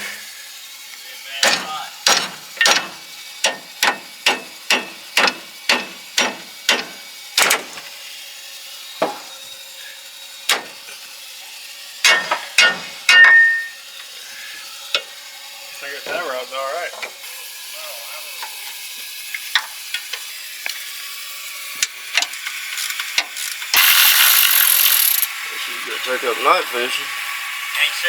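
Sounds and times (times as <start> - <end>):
hammer striking steel: 1.4 - 7.8, 9.0 - 9.3, 10.5 - 10.8, 12.0 - 13.8.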